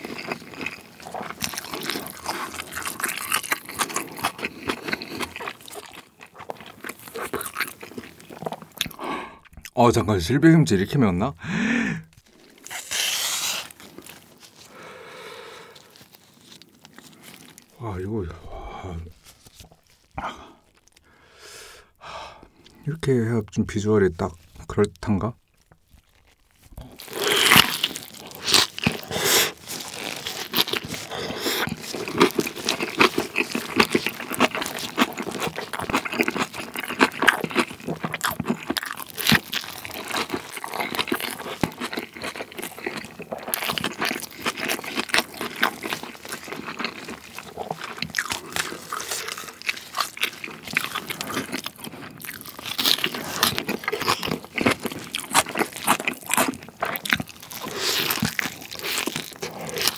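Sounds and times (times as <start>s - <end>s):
crunchy wet chewing: 0.0s - 9.8s, 12.0s - 21.3s, 21.9s - 22.9s, 24.2s - 59.9s
biting into food: 12.5s - 14.8s, 25.6s - 59.9s.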